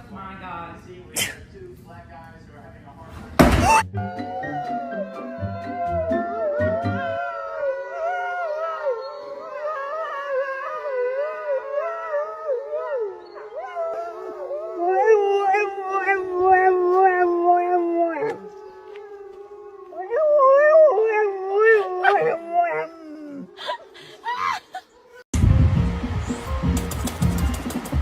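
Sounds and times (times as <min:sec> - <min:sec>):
dog howling: 0:03.7 - 0:23.6.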